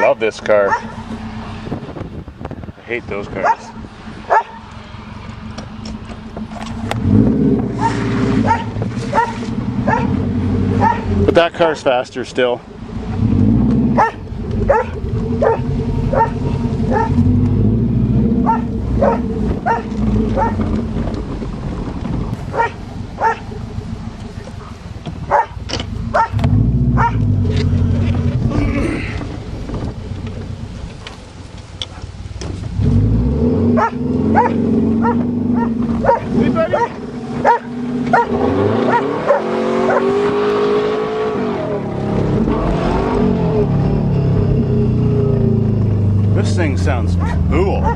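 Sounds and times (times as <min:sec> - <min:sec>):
car engine running: 0:00.0 - 0:47.9
dog barking in sharp yips: 0:00.7 - 0:01.0, 0:03.4 - 0:03.7, 0:04.3 - 0:04.6, 0:07.8 - 0:10.1, 0:10.8 - 0:11.1, 0:14.0 - 0:17.2, 0:18.4 - 0:20.6, 0:22.5 - 0:23.4, 0:25.3 - 0:26.4, 0:27.0 - 0:27.2, 0:33.8 - 0:40.1, 0:47.2 - 0:47.9.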